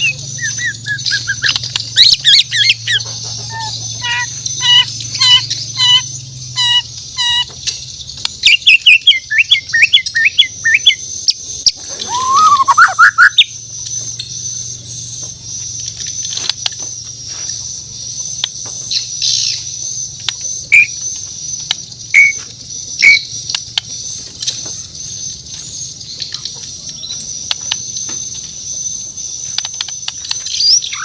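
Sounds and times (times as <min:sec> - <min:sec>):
bird singing whistled notes: 0:00.0 - 0:15.6, 0:23.0 - 0:31.0.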